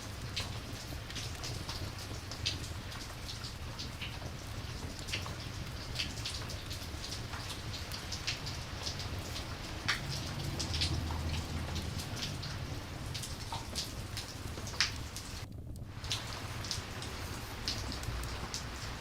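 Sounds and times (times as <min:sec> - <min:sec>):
steady rainfall: 0:00.0 - 0:19.0
low rumble: 0:08.5 - 0:19.0.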